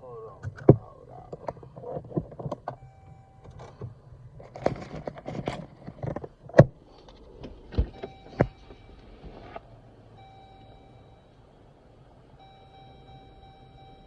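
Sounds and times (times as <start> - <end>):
car door clunks and thuds: 6.0 - 9.6.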